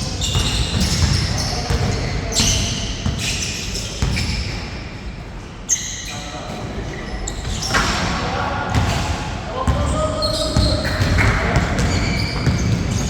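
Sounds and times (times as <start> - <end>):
shoe squeaks: 0.0 - 5.0, 5.6 - 8.2, 9.8 - 13.0
basketball bouncing: 0.2 - 3.3, 10.6 - 13.0.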